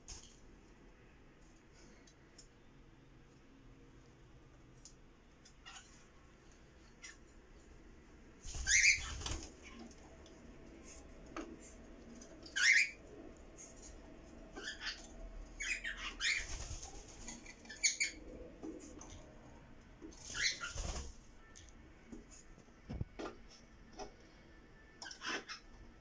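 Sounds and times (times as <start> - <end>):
cockatiels chirping: 8.6 - 9.3, 12.5 - 13.0, 14.6 - 16.6, 17.6 - 18.2, 20.3 - 20.9.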